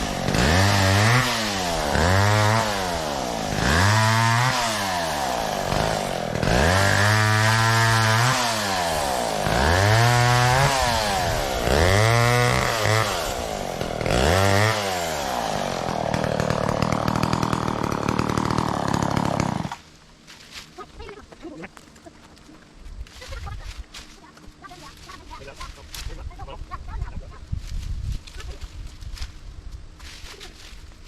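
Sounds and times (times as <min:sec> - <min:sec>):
chainsaw revving and idling: 0:00.0 - 0:19.9.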